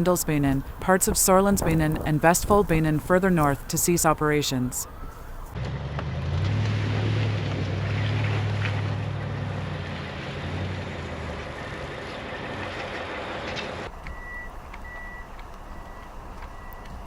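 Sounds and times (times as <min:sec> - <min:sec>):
outdoor noise: 0:00.0 - 0:17.0
vehicle engine rumbling: 0:00.0 - 0:17.0
reversing alarm beeping: 0:14.1 - 0:17.0.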